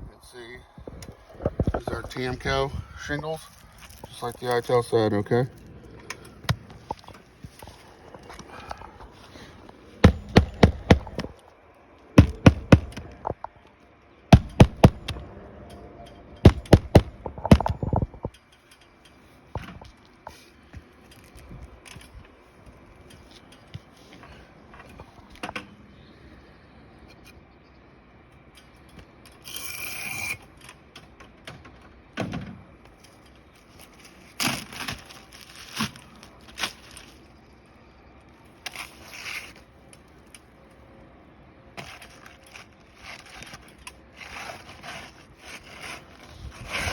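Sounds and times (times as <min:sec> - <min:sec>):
tools scraping and tapping shingles: 0:06.0 - 0:11.4, 0:12.2 - 0:13.5, 0:14.4 - 0:15.2, 0:16.1 - 0:22.2, 0:41.8 - 0:46.9
hammer blows: 0:10.0 - 0:11.3, 0:12.2 - 0:13.2, 0:14.3 - 0:15.3, 0:16.4 - 0:17.9.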